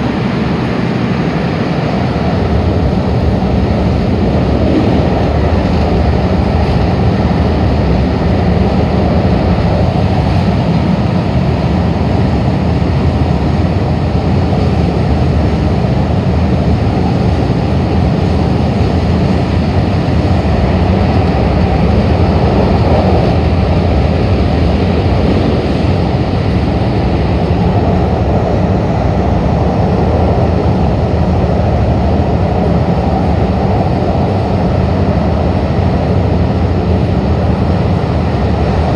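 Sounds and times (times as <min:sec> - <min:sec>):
low drone: 0:00.0 - 0:38.9
train wheels on track: 0:00.0 - 0:38.9.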